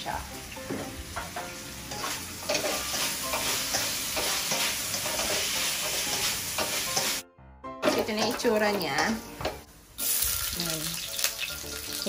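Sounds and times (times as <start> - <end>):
pork sizzling in a wok: 0.0 - 7.2, 7.9 - 12.0
spatula scraping a wok: 1.8 - 7.2.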